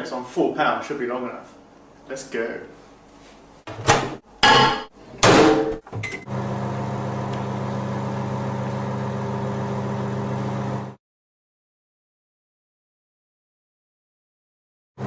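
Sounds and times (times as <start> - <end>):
microwave oven humming: 5.3 - 11.0.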